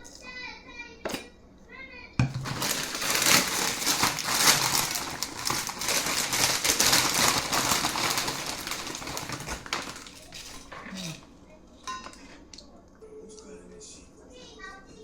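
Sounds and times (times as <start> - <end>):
chips crunching while chewed: 2.4 - 11.3.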